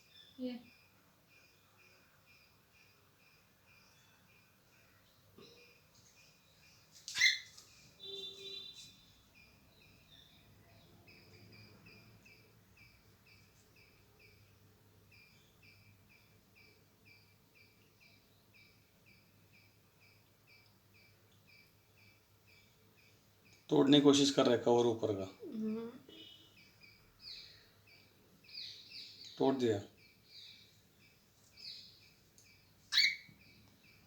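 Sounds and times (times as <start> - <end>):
soft bird chirps: 0.0 - 34.0
cockatiel call: 7.1 - 8.7, 32.9 - 33.3.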